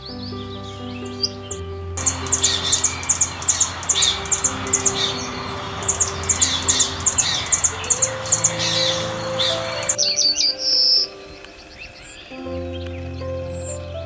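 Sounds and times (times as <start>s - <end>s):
soft background music: 0.0s - 14.0s
bird calling in high-pitched chips: 2.0s - 11.1s.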